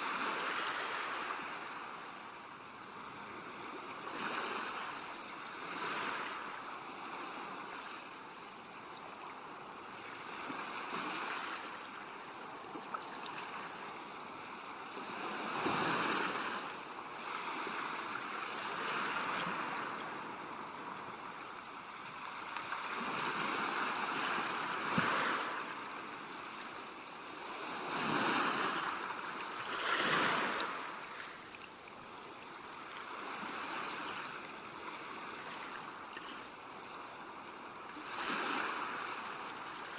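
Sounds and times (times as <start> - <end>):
ocean waves breaking: 13.4 - 31.5.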